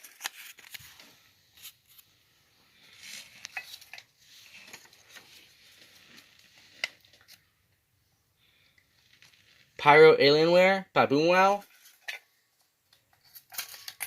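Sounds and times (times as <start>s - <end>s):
soft paper rustling: 0.0s - 7.6s, 8.4s - 9.8s.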